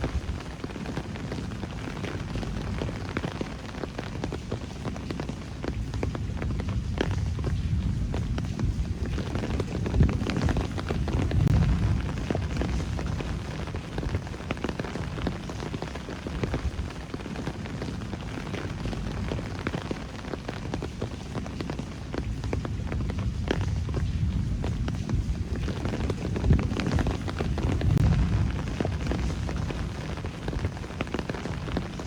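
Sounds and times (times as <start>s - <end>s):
rain drops striking: 0.0s - 32.0s
rain hiss: 0.0s - 32.0s
low rumble: 6.2s - 15.2s, 22.3s - 32.0s.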